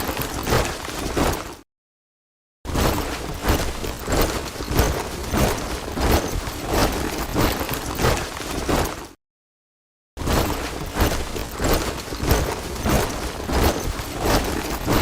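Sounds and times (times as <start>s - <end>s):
soldiers marching in step: 3.0s - 9.2s, 10.4s - 15.0s.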